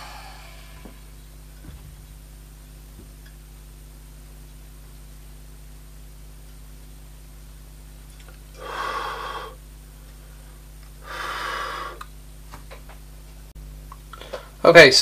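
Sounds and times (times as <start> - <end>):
person breathing out heavily: 0.0 - 1.2, 8.6 - 9.6, 10.2 - 12.1
low electrical hum: 0.0 - 15.0.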